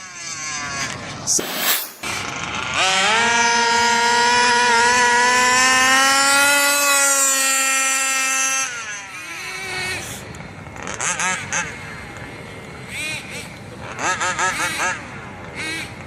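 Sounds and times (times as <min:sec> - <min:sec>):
rc car motor whining: 0:02.0 - 0:10.2.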